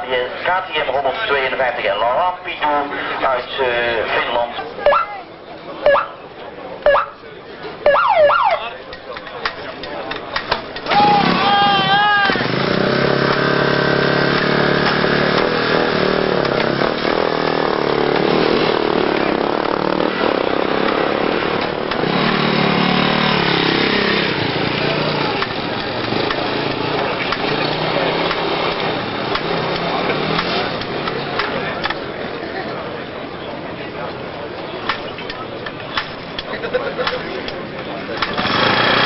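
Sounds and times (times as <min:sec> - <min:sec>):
motorcycle engines revving: 0:09.1 - 0:39.0.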